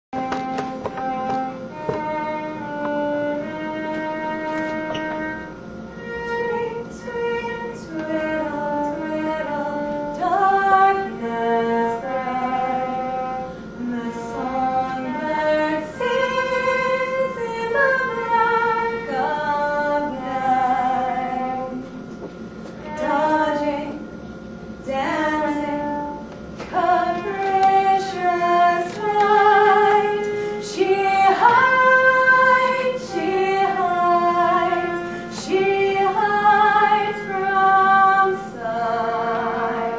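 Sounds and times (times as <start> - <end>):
sustained accompaniment: 0.2 - 39.9
woman singing slow melody: 6.3 - 21.9, 22.8 - 24.1, 24.8 - 39.9.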